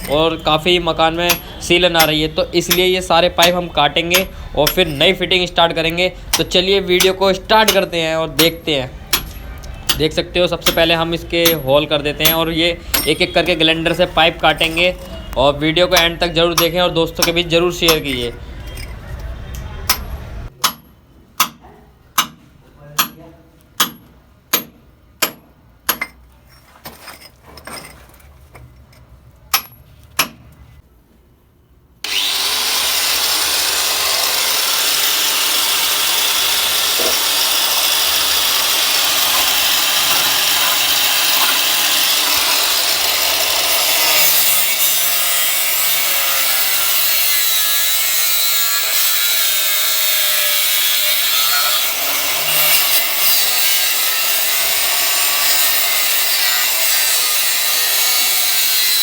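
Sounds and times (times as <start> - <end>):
angle grinder cutting metal pipe: 0.0 - 9.3, 9.9 - 18.4, 32.0 - 59.0.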